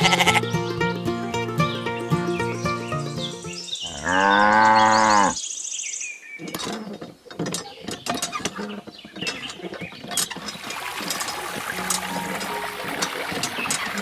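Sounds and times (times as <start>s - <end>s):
cow mooing: 0.0s - 0.4s, 3.8s - 5.4s
hand pump clicking and creaking: 6.4s - 14.0s.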